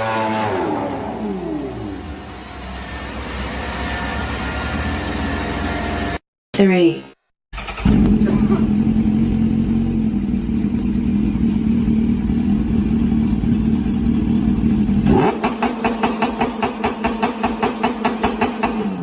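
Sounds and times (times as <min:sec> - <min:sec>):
motorcycle engine running: 0:07.6 - 0:19.0.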